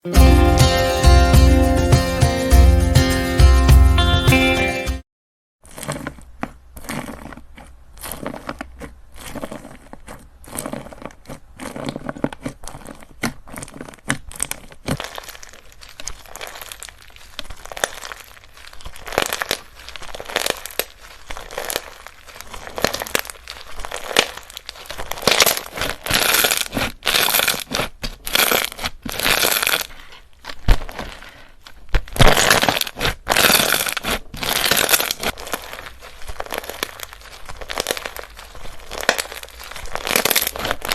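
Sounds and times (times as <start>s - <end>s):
slime squeezed by hand: 5.6s - 40.9s.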